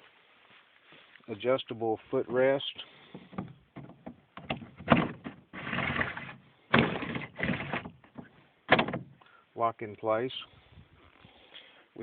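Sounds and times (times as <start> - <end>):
footrest sliding rasps: 3.2 - 9.2.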